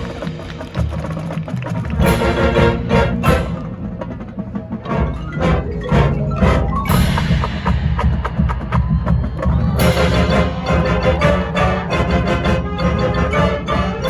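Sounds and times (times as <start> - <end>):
rhythmic percussion: 0.0 - 14.0
brass and wind chords: 2.0 - 8.4, 9.8 - 14.0.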